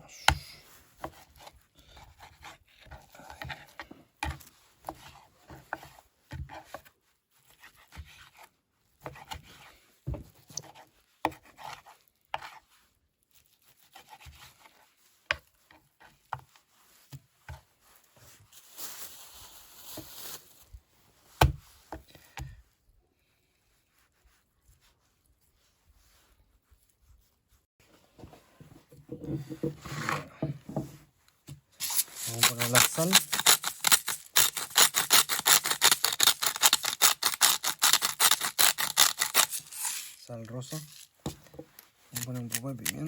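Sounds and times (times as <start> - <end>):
rustling: 16.5 - 21.9, 31.8 - 43.0
knife cutting and scraping: 31.8 - 43.0.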